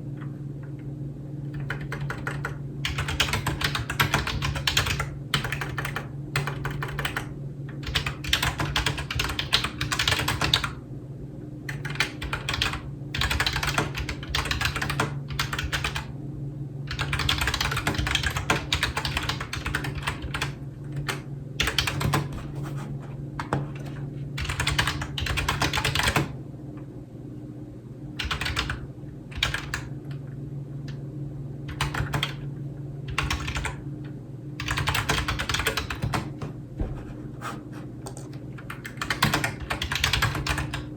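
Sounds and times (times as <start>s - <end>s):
steady low hum: 0.0s - 40.9s
computer keyboard typing: 1.5s - 10.8s, 11.7s - 16.1s, 16.9s - 22.7s, 23.4s - 26.3s, 28.2s - 28.8s, 29.4s - 29.9s, 31.7s - 32.4s, 33.1s - 33.8s, 34.6s - 36.5s, 38.0s - 40.9s.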